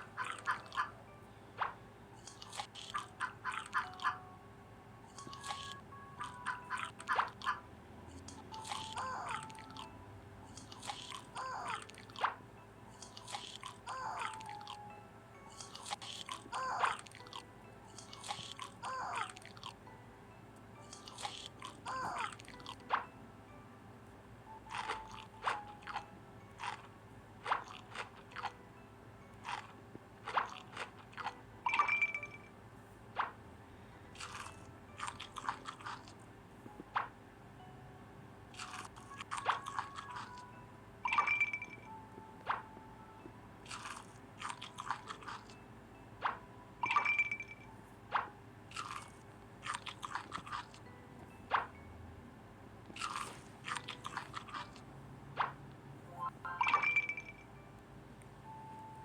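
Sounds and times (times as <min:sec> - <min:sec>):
person chewing crunchy food: 0:02.2 - 0:04.0, 0:05.1 - 0:07.5, 0:10.5 - 0:12.2, 0:13.0 - 0:14.8, 0:15.5 - 0:19.7, 0:20.9 - 0:22.8, 0:24.7 - 0:26.0, 0:26.6 - 0:28.6, 0:29.4 - 0:31.4, 0:34.2 - 0:36.2, 0:38.6 - 0:40.4, 0:43.6 - 0:45.6, 0:48.7 - 0:50.8, 0:52.9 - 0:54.8.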